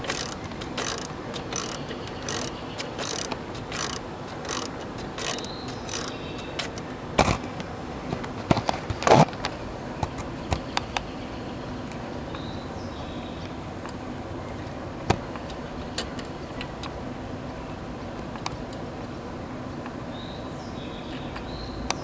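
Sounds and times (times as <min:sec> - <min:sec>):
metal tools clanking: 0:00.0 - 0:06.8
ratchet wrench strokes: 0:00.0 - 0:06.8.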